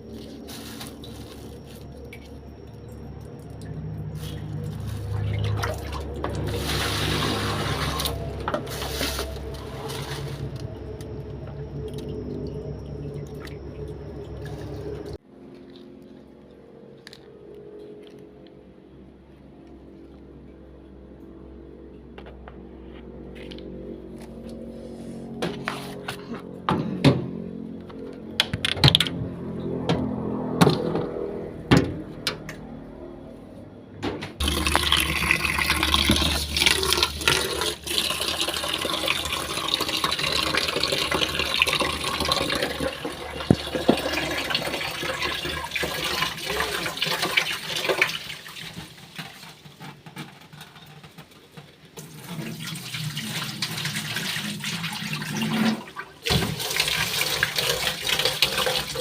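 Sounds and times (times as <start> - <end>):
tap water running into sink: 34.4 - 49.6, 52.0 - 59.0.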